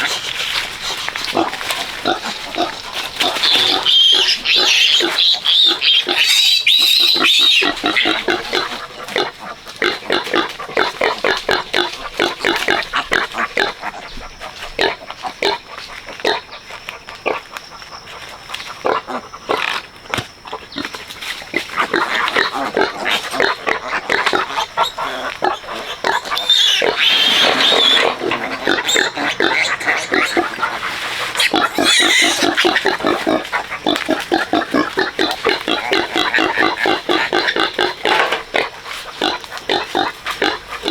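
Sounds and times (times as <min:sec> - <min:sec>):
pigs grunting: 0:00.0 - 0:16.6, 0:20.5 - 0:40.9
shrill pig squeals: 0:01.2 - 0:09.3, 0:21.9 - 0:34.0.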